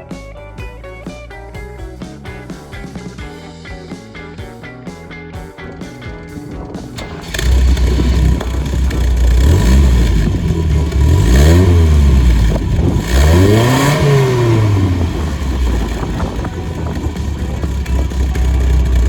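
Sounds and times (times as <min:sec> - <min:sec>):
car engine idling and revving: 0:07.0 - 0:19.0.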